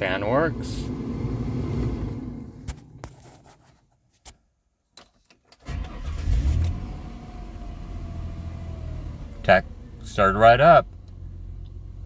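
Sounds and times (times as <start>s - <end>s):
car engine starting and idling: 0.0s - 3.1s, 5.5s - 12.0s.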